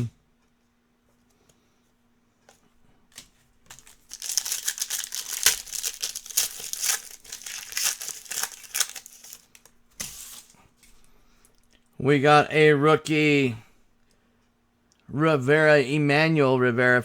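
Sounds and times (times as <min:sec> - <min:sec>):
foil wrapper tearing and crinkling: 0:03.7 - 0:10.6.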